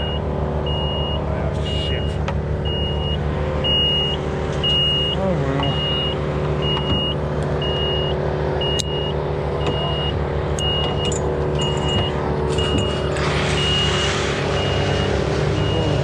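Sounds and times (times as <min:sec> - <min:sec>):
high warning beep: 0:00.0 - 0:13.0, 0:14.6 - 0:16.0
engine running steadily: 0:00.0 - 0:16.0.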